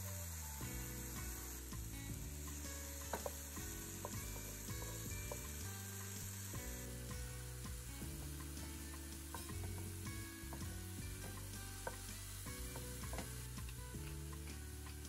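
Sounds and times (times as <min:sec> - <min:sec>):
mushrooms sizzling in oil: 0:00.0 - 0:15.0
soft background music: 0:00.0 - 0:15.0
utensil clicking against pan: 0:09.2 - 0:10.7.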